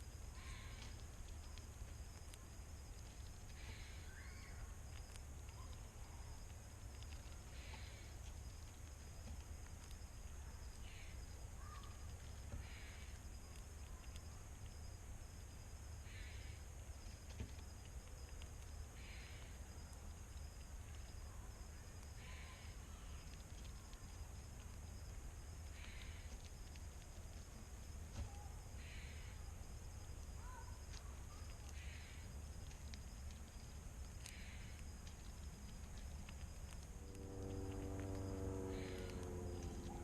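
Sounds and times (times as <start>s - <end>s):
low background rumble: 0.0s - 40.0s
high-pitched insect drone: 37.0s - 40.0s.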